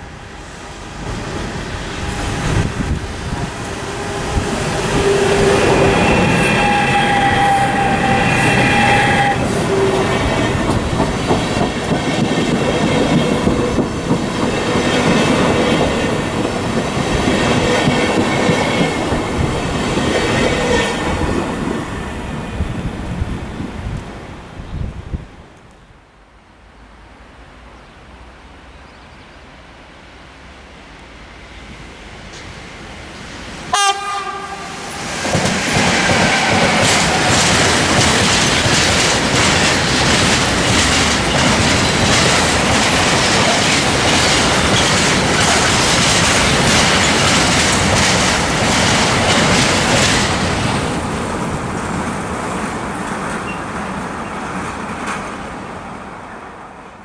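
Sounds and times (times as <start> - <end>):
train rushing past: 0.0 - 57.0
wheels clattering over rails: 1.1 - 22.2, 35.2 - 55.6
train horn blast: 2.0 - 10.8, 33.7 - 35.1.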